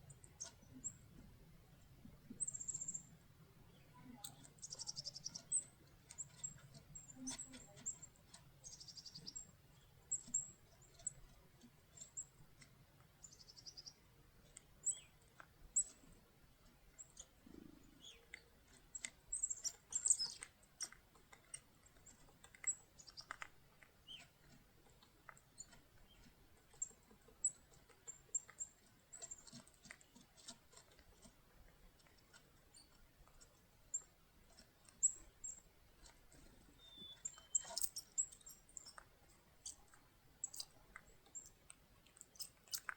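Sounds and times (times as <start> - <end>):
chickadees calling: 0.0 - 1.2, 2.1 - 14.1, 14.8 - 16.0, 16.9 - 23.4, 24.0 - 24.5, 36.3 - 39.0, 40.4 - 41.6.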